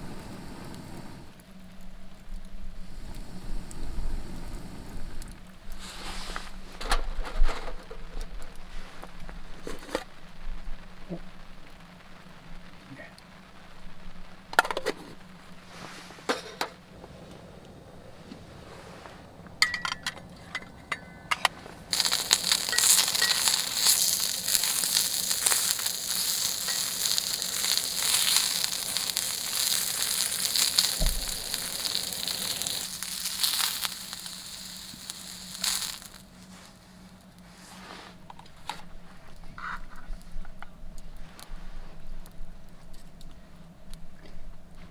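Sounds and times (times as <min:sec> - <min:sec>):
meat sizzling on a grill: 0:00.0 - 0:06.7, 0:21.8 - 0:37.2.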